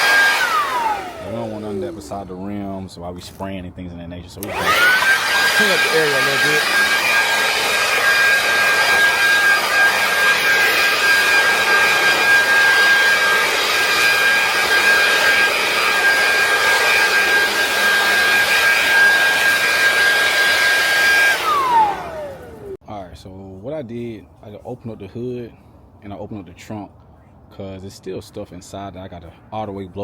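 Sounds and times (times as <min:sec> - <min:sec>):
handheld blower whining: 0:00.0 - 0:02.8, 0:04.4 - 0:22.8.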